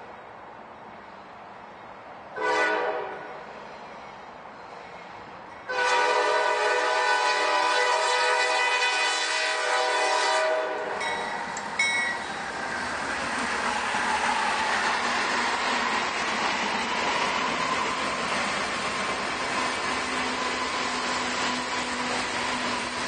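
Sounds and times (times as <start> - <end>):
freight train rolling past: 0.0 - 23.0
train air horn chord: 2.4 - 3.3, 5.7 - 11.0.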